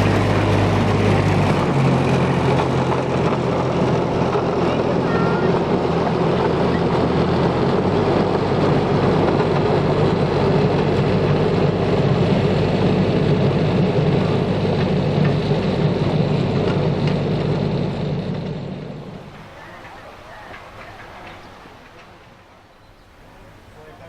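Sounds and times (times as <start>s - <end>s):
diesel railway engine running: 0.0s - 24.0s.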